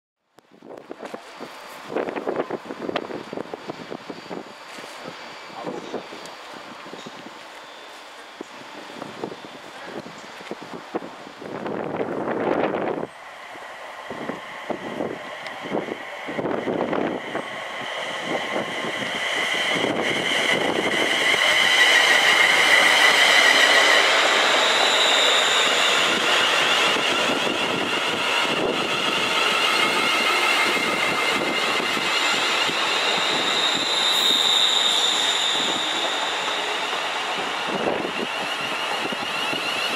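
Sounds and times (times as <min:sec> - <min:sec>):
train wheels rumbling on rails: 0:00.6 - 0:39.9
high singing tones: 0:13.0 - 0:39.9.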